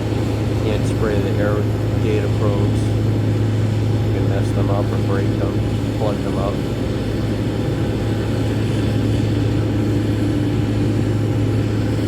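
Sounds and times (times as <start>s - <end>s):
steady low engine drone: 0.0s - 12.0s.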